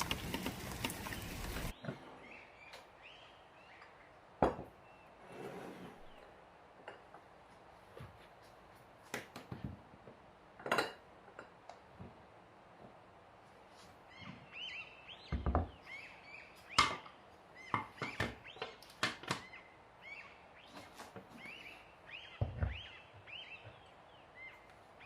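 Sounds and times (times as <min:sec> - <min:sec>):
small birds chirping: 0:00.0 - 0:05.3, 0:14.0 - 0:25.0.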